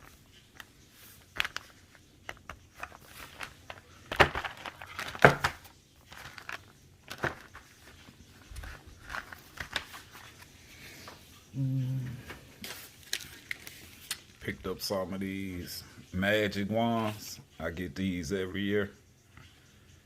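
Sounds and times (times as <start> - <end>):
plastic packaging crinkling: 1.2 - 10.4, 12.7 - 14.4.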